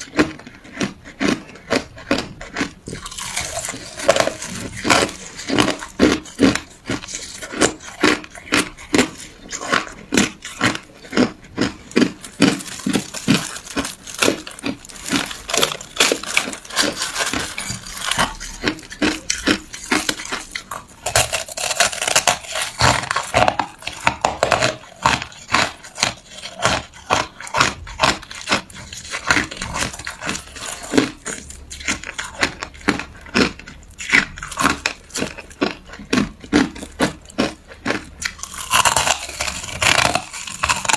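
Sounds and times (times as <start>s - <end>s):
person chewing ice: 0.0s - 40.9s.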